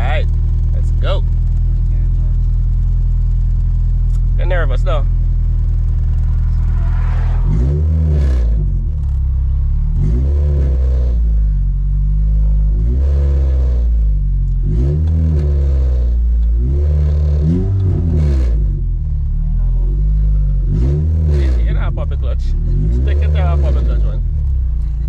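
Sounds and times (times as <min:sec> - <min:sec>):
car engine idling: 0:00.0 - 0:25.0
engine throttle blips: 0:00.0 - 0:25.0.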